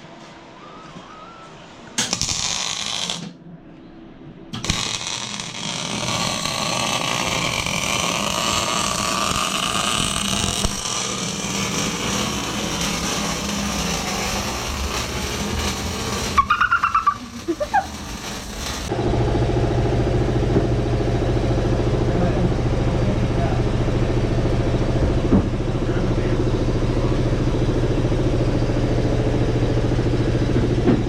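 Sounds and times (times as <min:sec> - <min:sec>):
power tool running: 0:04.6 - 0:22.0.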